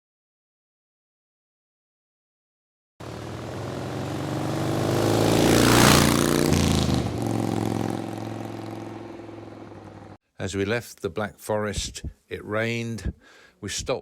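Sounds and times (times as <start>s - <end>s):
vehicle passing by: 3.0s - 10.2s.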